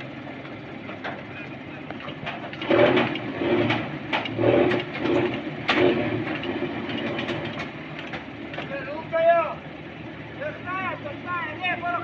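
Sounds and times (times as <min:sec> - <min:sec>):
truck crane machinery: 0:00.0 - 0:12.0
sharp mechanical clicks and knocks: 0:01.9 - 0:08.8.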